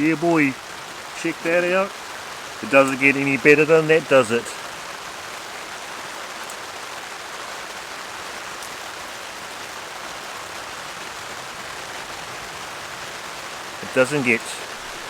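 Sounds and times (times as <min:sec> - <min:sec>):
heavy rain on a tarp: 0:00.0 - 0:15.0.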